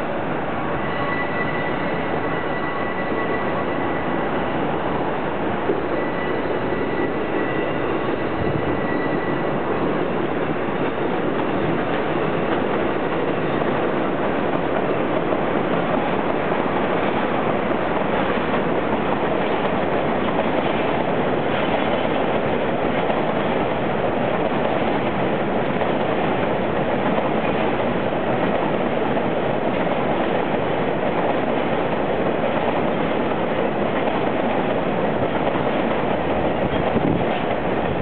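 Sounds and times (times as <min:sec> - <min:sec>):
train wheels on track: 0:00.0 - 0:38.0.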